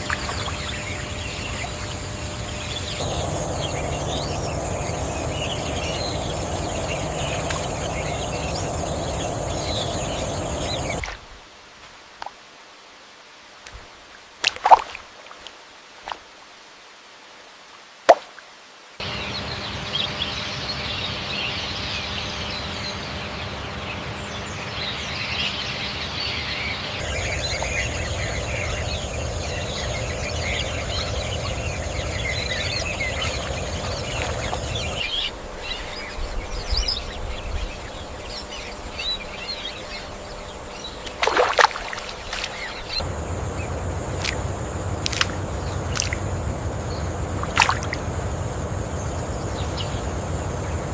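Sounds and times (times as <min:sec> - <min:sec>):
birds and insects chirping: 0:00.0 - 0:18.0, 0:18.6 - 0:50.9
soft plops and clicks: 0:45.0 - 0:46.2.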